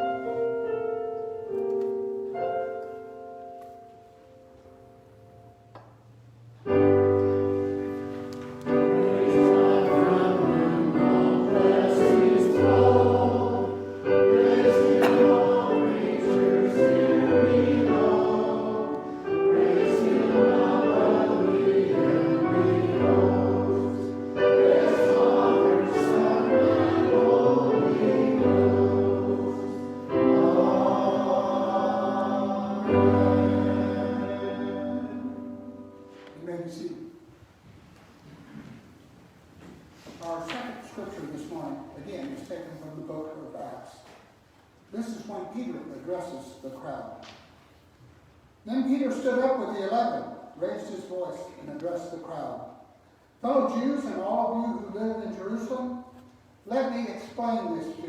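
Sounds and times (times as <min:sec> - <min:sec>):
keyboard accompaniment: 0:00.0 - 0:36.9
choir singing a hymn: 0:06.8 - 0:36.4.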